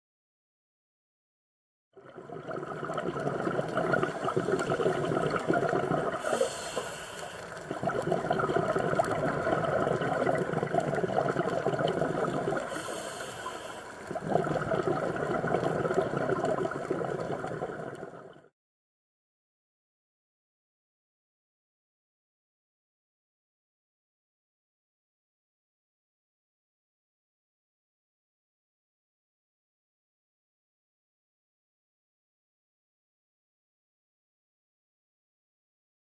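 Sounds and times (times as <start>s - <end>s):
regulator bubbling underwater: 2.0s - 18.5s.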